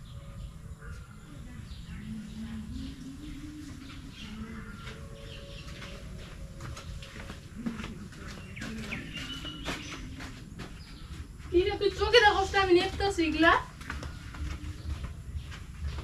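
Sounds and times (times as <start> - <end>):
low cooing bird call: 0.0 - 11.0
birds chirping and calling: 0.0 - 16.0
steady low rumble: 0.0 - 16.0.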